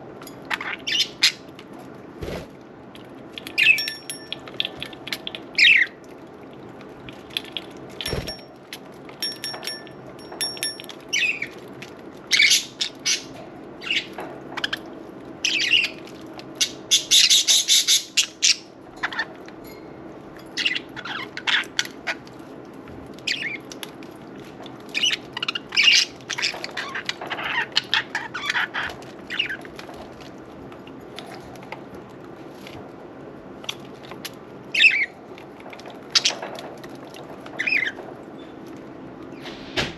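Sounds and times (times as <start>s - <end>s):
wing flapping: 2.2s - 2.5s.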